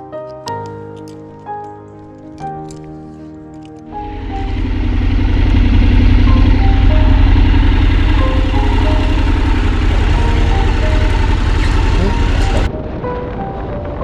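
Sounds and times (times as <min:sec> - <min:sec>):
background music: 0:00.0 - 0:14.0
motorcycle engine running: 0:03.9 - 0:12.7.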